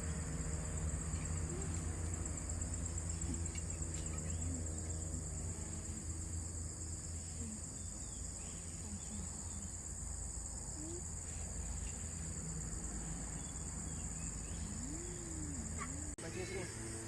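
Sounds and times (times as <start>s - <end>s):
insect chorus: 0.0s - 17.0s
faint wavering call: 14.5s - 16.2s.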